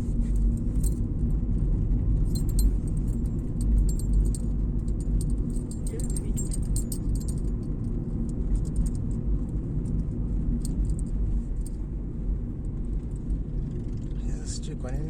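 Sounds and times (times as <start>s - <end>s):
car road and engine rumble: 0.0s - 15.0s
light rattling ticks: 2.3s - 7.5s.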